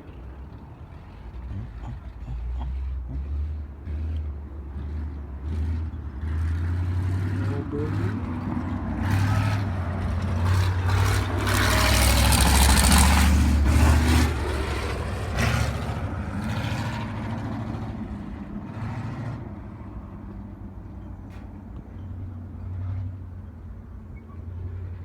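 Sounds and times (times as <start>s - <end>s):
race car engine running: 7.1s - 21.1s.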